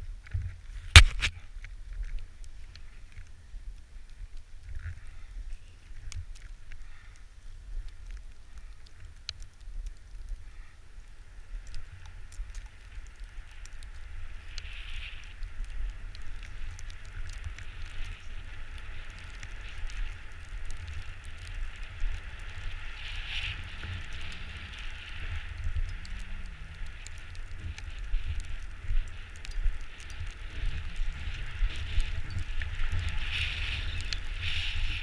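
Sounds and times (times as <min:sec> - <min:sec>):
wind rumble on microphone: 0:00.0 - 0:35.0
tyres crackling over gravel: 0:00.2 - 0:35.0.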